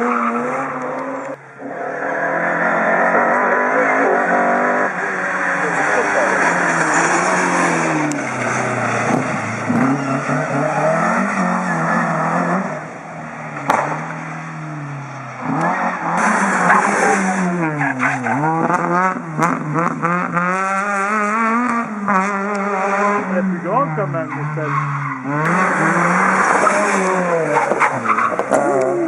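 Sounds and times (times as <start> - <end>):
rally car engine revving: 0.0 - 29.0
sharp crack: 13.6 - 14.2.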